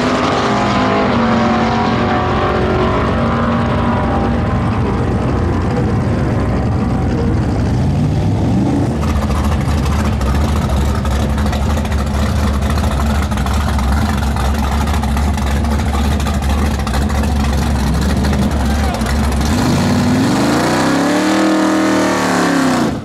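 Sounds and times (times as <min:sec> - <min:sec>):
distant race cars on drag strip: 0:00.0 - 0:23.0
drag car engine idling: 0:03.1 - 0:20.3.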